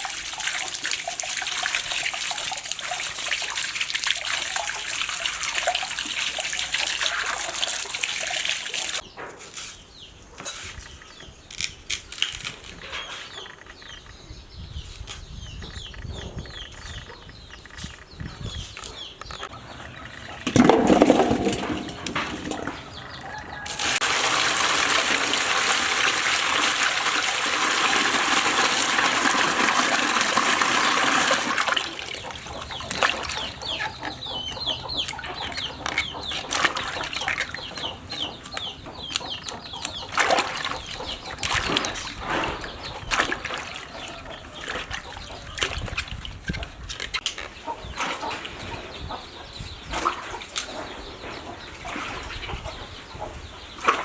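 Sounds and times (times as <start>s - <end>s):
hens clucking: 19.4s - 54.0s
water rushing: 23.6s - 32.5s.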